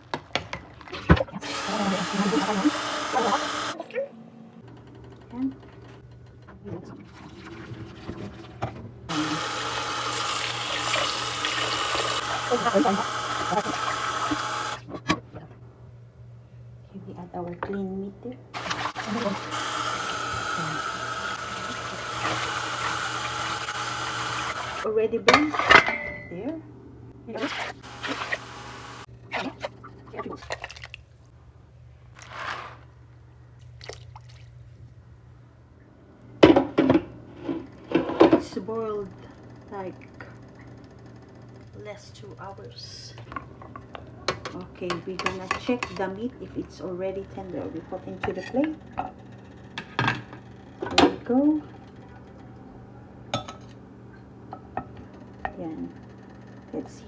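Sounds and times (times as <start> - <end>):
tap water running into sink: 1.4 - 3.8, 9.1 - 14.8, 18.6 - 24.8, 27.5 - 29.1
liquid sloshing: 9.1 - 14.8, 18.6 - 24.8, 27.4 - 31.2, 33.7 - 34.6.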